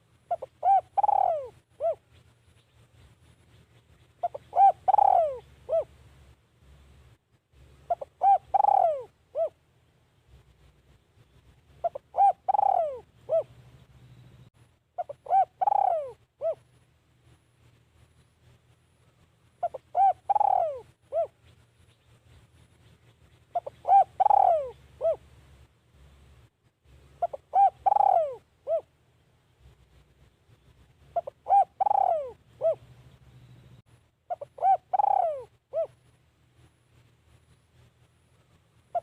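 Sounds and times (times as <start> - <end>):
dove cooing: 0.0 - 2.0, 4.2 - 6.0, 7.9 - 9.6, 11.8 - 13.7, 15.0 - 16.7, 19.6 - 21.4, 23.5 - 25.3, 27.2 - 28.9, 31.1 - 33.0, 34.3 - 36.0.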